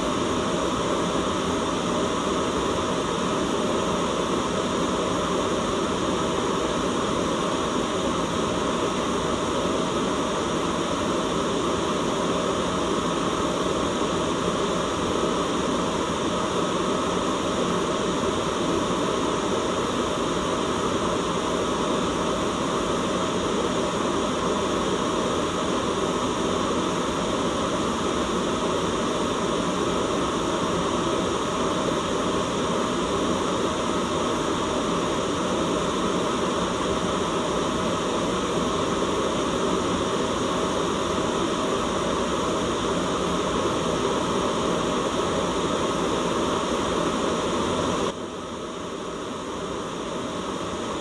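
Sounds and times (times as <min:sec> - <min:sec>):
white noise hiss: 0:00.0 - 0:51.0.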